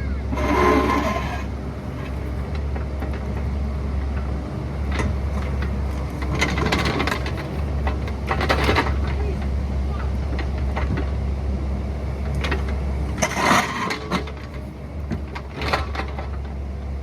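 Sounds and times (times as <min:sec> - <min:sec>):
excavator engine running: 0:00.0 - 0:17.0
short squealing scrape: 0:00.3 - 0:02.3, 0:13.2 - 0:14.1
metal scraping and clanking: 0:00.3 - 0:11.2, 0:12.2 - 0:16.5.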